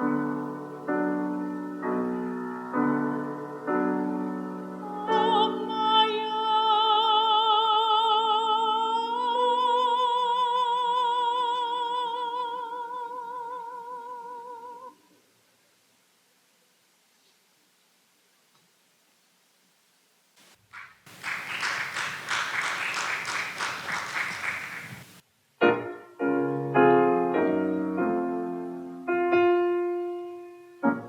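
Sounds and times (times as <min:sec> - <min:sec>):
piano chords: 0:00.0 - 0:06.0.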